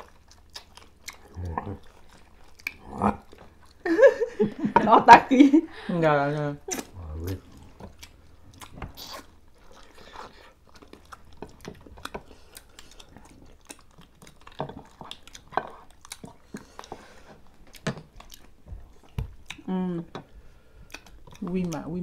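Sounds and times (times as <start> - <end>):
people chewing and sucking meat: 0.0 - 4.7, 6.4 - 22.0
mouth clicks and smacks: 2.5 - 3.3, 6.6 - 9.4, 17.6 - 20.2, 20.8 - 21.9.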